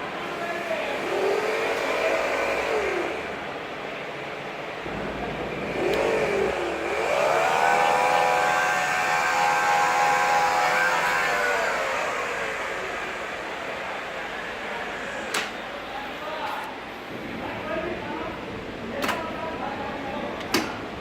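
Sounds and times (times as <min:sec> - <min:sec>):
milling machine motor whining: 0:00.2 - 0:04.2, 0:04.8 - 0:16.2.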